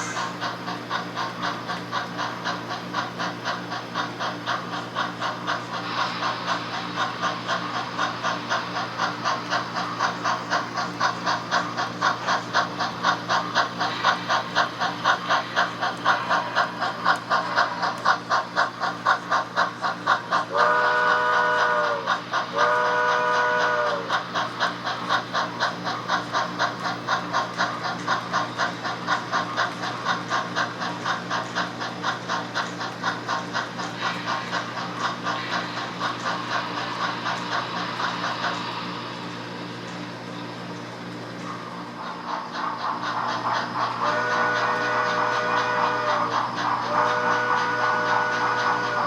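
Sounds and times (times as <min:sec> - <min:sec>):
model steam locomotive chuffs: 0:00.0 - 0:49.0
train whistle blasts: 0:20.5 - 0:24.1, 0:44.0 - 0:46.3, 0:46.9 - 0:49.0.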